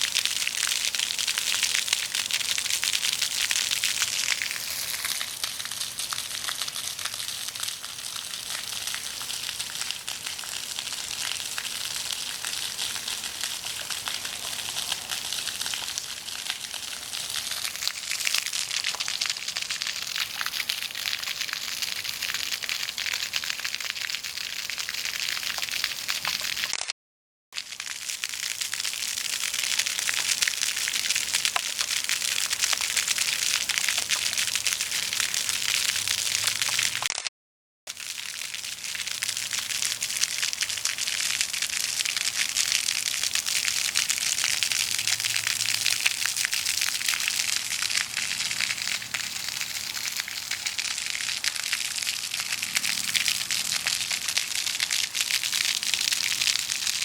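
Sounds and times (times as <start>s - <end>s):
floodwater rushing: 0.7s - 23.6s, 43.6s - 57.0s.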